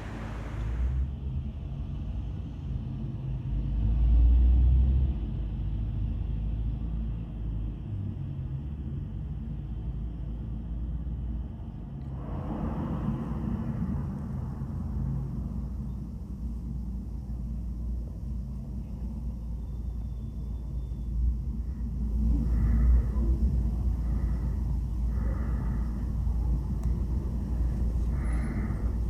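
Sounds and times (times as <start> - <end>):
rushing hiss: 0.0 - 1.1
low vehicle rumble: 0.0 - 29.0.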